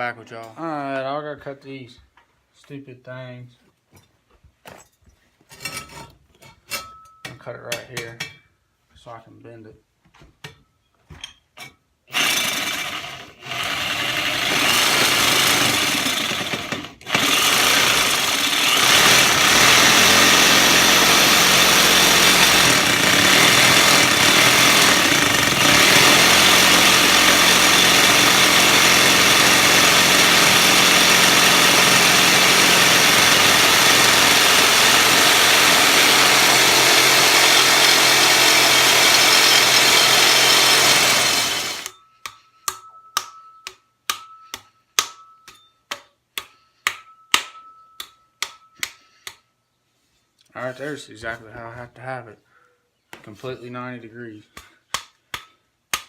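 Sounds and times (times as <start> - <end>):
power tool cutting steel pipe: 12.1 - 41.9.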